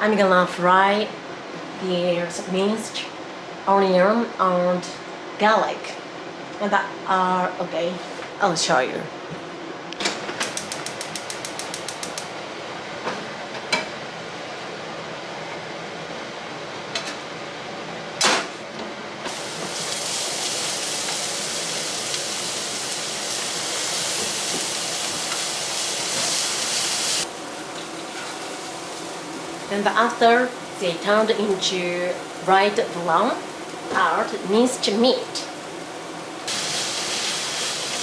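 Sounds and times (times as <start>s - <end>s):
gas stove igniter clicking: 10.4s - 12.3s
onion and garlic sizzling in oil: 19.3s - 38.0s.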